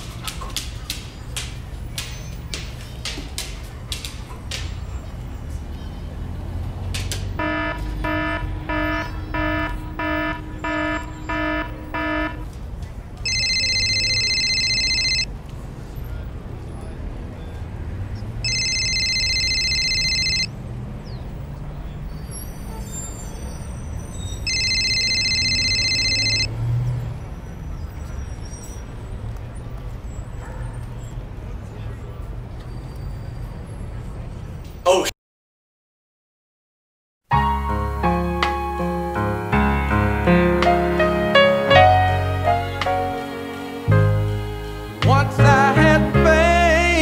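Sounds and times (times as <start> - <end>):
buzzy alarm beeps: 7.4 - 12.5, 18.5 - 20.5, 24.5 - 26.5
trilling phone ring tone: 7.4 - 12.5, 13.2 - 15.3, 18.4 - 20.5, 24.4 - 26.5.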